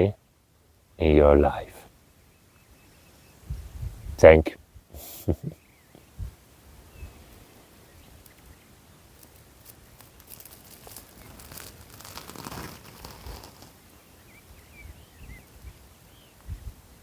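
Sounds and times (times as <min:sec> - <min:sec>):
faint bird chirps: 0:02.0 - 0:04.2, 0:05.4 - 0:10.2, 0:13.9 - 0:17.0
rustling crackling noise: 0:08.1 - 0:14.2.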